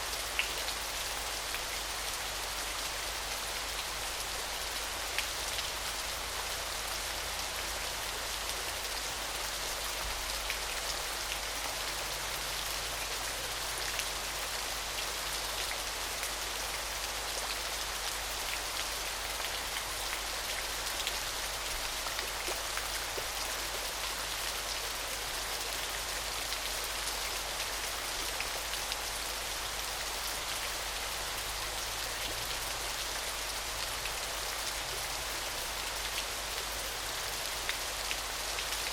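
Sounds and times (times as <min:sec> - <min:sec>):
small waterfall splashing: 0:00.0 - 0:38.9.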